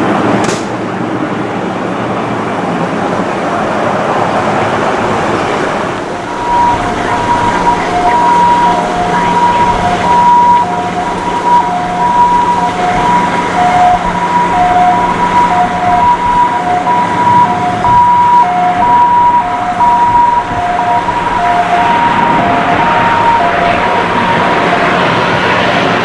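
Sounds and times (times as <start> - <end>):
aircraft engine noise: 0.0 - 26.0
two-tone emergency siren: 5.2 - 26.0.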